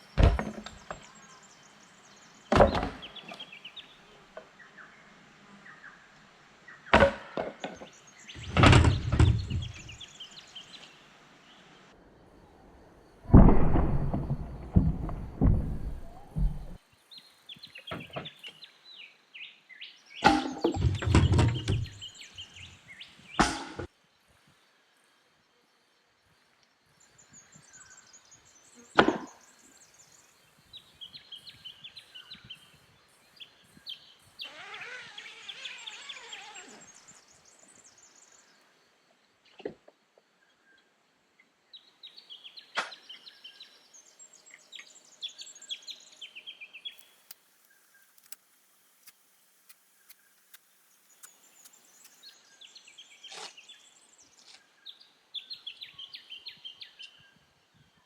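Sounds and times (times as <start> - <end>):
birds chirping and calling: 6.8 - 10.9.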